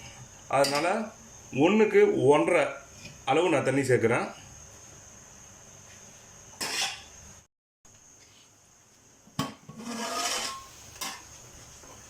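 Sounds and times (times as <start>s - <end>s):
utensil scraping cooking pot: 6.6s - 7.1s, 9.6s - 11.2s
metal scraping: 9.7s - 10.7s.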